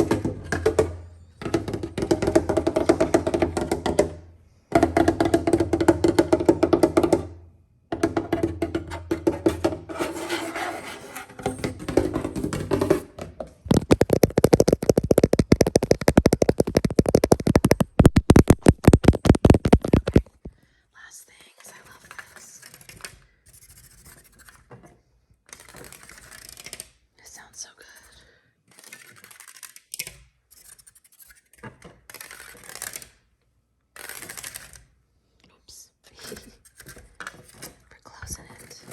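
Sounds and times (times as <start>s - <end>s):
tapping on hollow objects: 0.0s - 9.9s, 11.4s - 20.6s.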